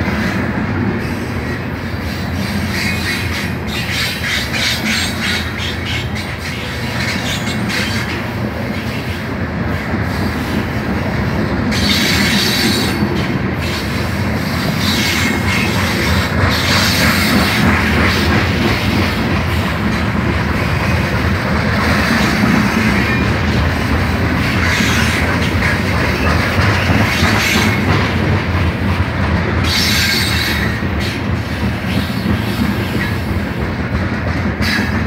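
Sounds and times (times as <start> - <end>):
train wheels rumbling on rails: 0.0 - 35.0
wheels clicking over rail joints: 11.6 - 35.0.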